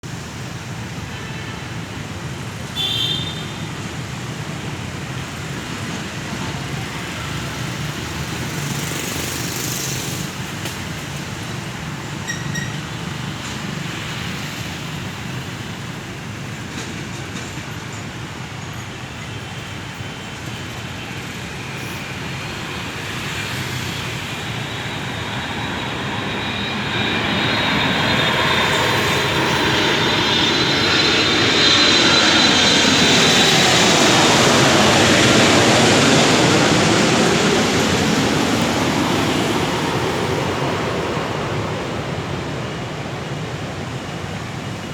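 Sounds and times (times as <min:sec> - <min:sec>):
airliner jet engines: 0:00.0 - 0:44.9
road traffic noise: 0:00.0 - 0:44.9.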